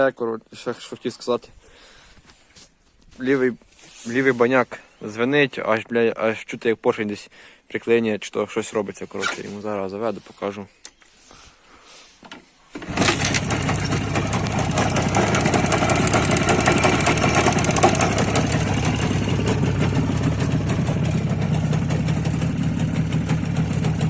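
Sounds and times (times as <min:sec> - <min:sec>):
engine ringing: 0:12.8 - 0:24.0
motorcycle engine idling: 0:12.8 - 0:24.0.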